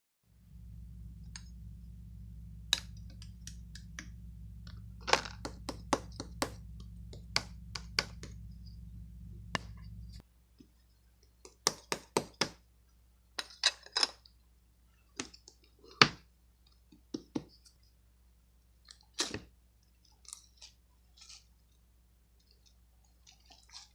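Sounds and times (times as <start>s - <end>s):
low hum: 0.2s - 11.3s.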